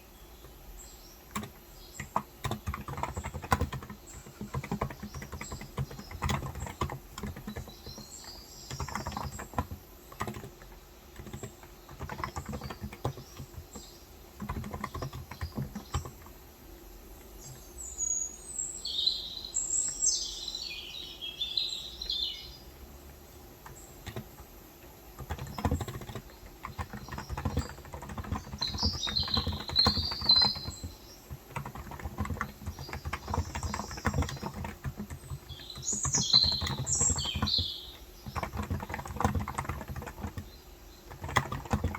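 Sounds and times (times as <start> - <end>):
small birds chirping: 0.0 - 41.9
keyboard typing: 0.4 - 16.4, 23.5 - 41.9.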